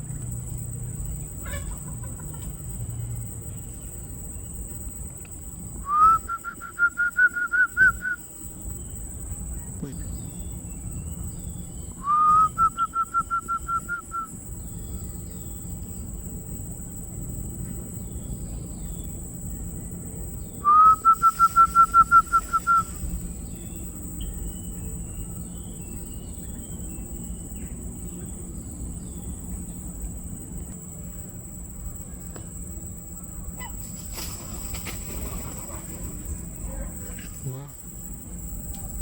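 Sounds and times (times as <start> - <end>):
bird whistling call: 5.8 - 8.2, 11.9 - 14.3, 20.6 - 23.1.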